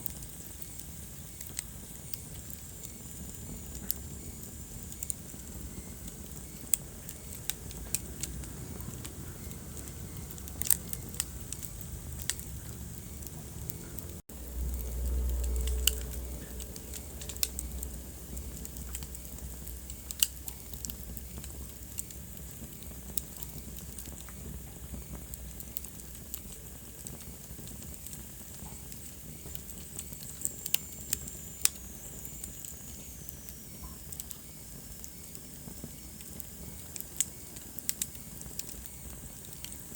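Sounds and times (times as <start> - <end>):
wood fire crackling and popping: 0.0 - 39.9
low rumble: 7.4 - 22.4.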